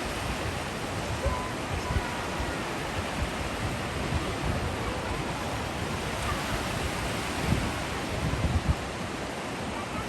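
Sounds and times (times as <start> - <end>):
sea waves washing on shore: 0.0 - 10.0.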